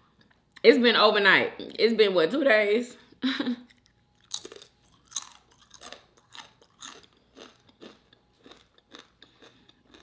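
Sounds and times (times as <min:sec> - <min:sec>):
crunchy chip chewing: 0:03.7 - 0:10.0.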